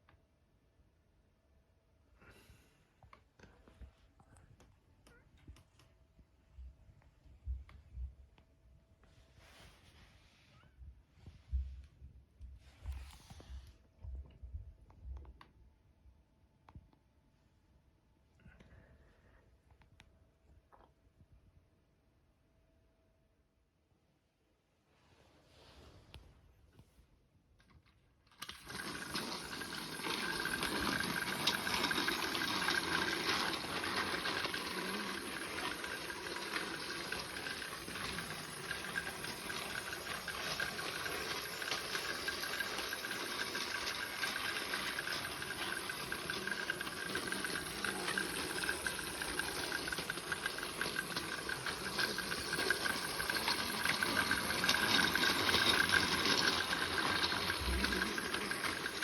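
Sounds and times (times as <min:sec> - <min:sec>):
toy train motor whir: 0:28.3 - 0:59.0
wheels clattering over rail joints: 0:28.4 - 0:59.0.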